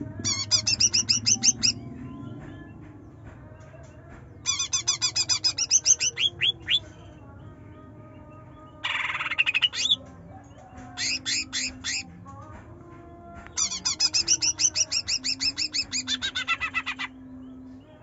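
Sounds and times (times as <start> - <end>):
bird singing shrill chirps: 0.2 - 2.4, 4.4 - 7.4, 8.2 - 10.1, 10.9 - 12.2, 13.5 - 18.0.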